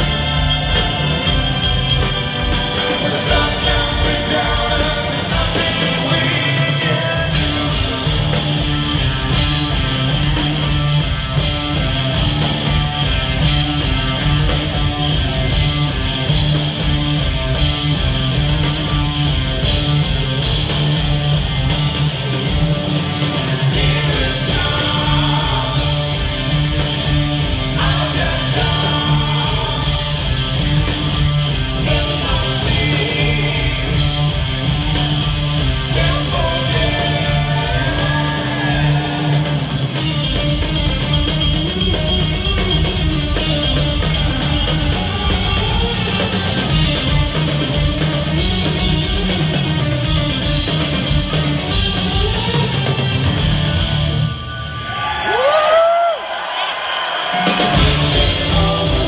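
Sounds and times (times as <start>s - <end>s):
bass and drums: 0.0s - 59.0s
distorted electric guitars: 0.0s - 59.0s.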